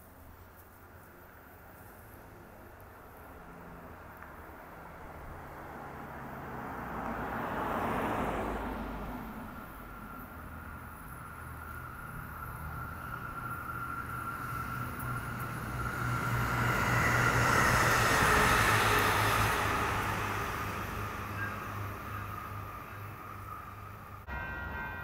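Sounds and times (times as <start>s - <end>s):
diesel train passing: 0.6s - 25.0s
high whine: 19.4s - 25.0s.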